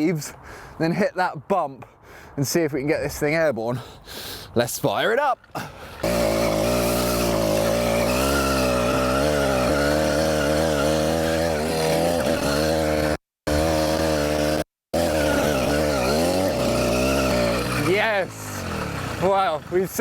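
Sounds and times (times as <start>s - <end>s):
two-stroke engine revving: 5.6s - 20.0s.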